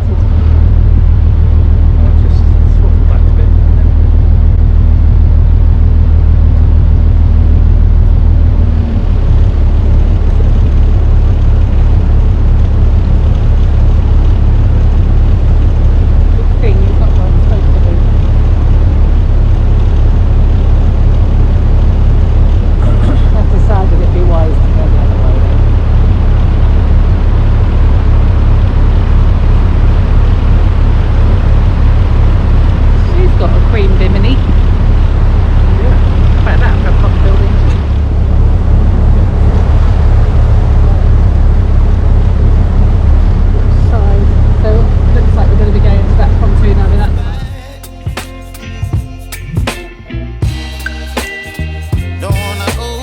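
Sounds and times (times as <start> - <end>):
boat engine running: 0.0 - 53.0.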